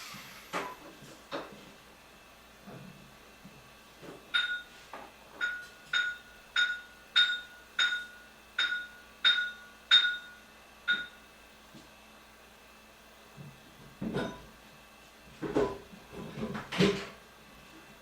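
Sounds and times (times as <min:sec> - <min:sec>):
tool clanking on hard object: 0:04.0 - 0:10.3, 0:14.0 - 0:14.5, 0:15.4 - 0:17.2.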